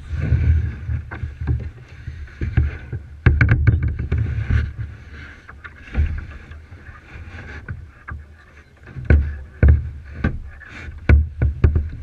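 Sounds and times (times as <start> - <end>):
sharp knocks and low thumps: 0.0 - 5.0, 8.9 - 12.0
paddle strokes splashing water: 0.0 - 12.0.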